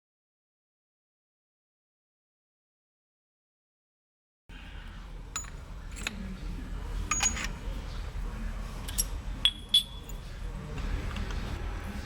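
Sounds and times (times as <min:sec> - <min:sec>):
low steady hum: 0:04.5 - 0:12.0
metal parts clinking: 0:07.1 - 0:07.6.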